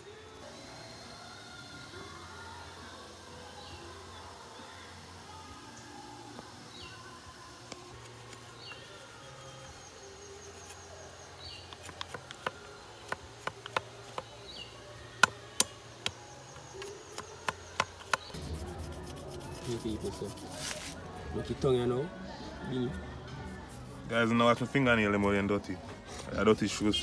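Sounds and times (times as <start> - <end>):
high insect-like buzz: 0.1 - 21.1
sharp clicks and taps: 11.7 - 14.3.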